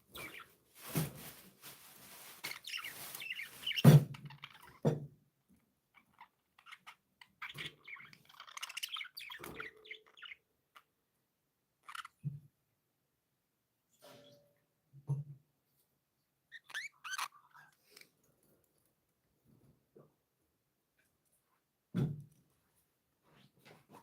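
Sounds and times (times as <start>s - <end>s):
budgerigars chirping and chattering: 2.4s - 4.8s, 6.1s - 10.4s.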